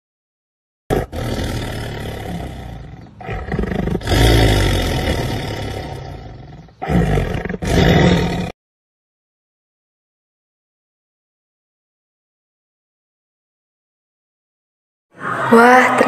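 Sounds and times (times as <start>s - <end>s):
panther growling and snarling: 0.9s - 8.6s.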